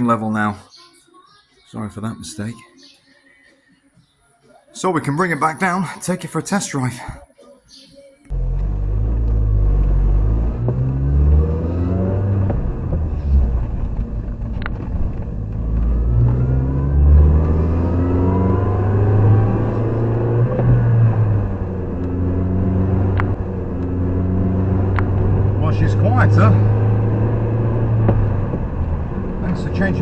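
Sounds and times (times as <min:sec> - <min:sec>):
road noise: 0:00.0 - 0:00.8, 0:07.9 - 0:30.0
car engine accelerating: 0:08.3 - 0:30.0.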